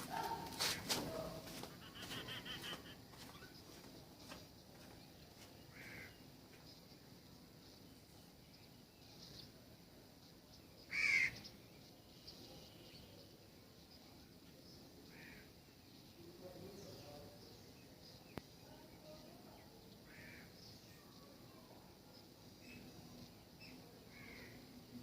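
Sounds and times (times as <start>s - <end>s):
wild birds calling: 0.0s - 3.8s, 5.7s - 6.3s, 10.8s - 11.6s.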